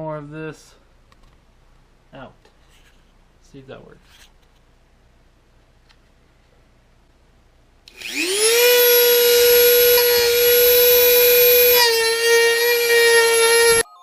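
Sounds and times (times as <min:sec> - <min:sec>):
rotary tool cutting plastic: 0:07.9 - 0:13.8.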